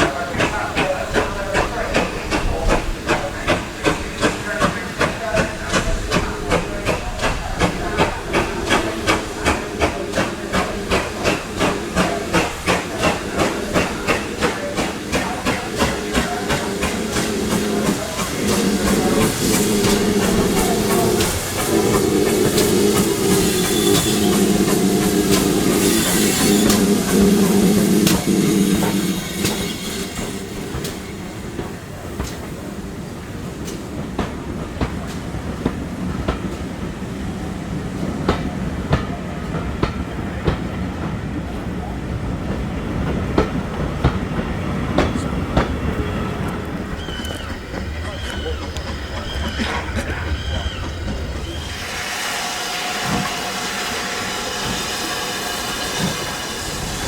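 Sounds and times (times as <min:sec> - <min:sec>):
steam locomotive chuffing: 0:00.0 - 0:57.0
train rumble and hiss: 0:00.0 - 0:57.0.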